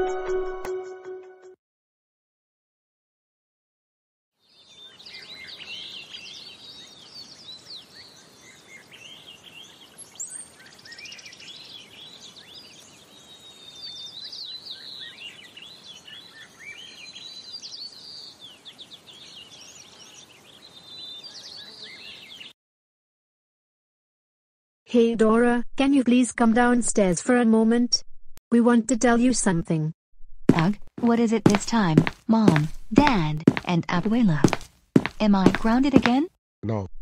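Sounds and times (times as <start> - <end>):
birds chirping and singing: 4.5 - 22.5.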